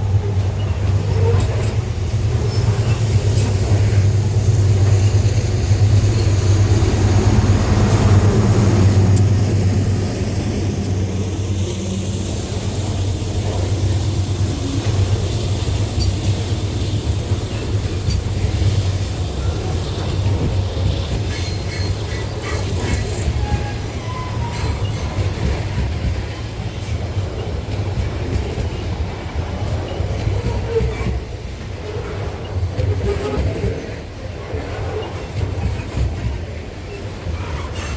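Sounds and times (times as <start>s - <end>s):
freight train rumbling: 0.0s - 37.9s
train wheel clicks: 24.4s - 37.9s.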